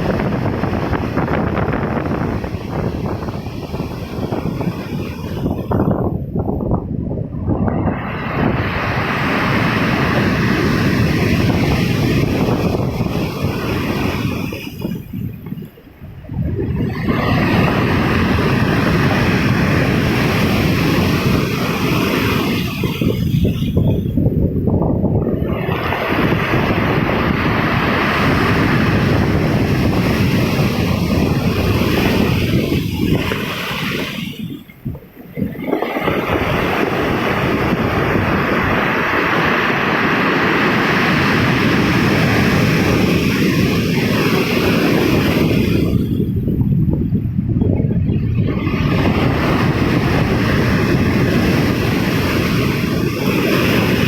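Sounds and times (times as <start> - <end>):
ocean surf rumbling: 0.0 - 54.0
sea waves breaking: 0.0 - 54.0
wind buffeting microphone: 0.0 - 54.0
breaking waves hissing: 25.4 - 46.3.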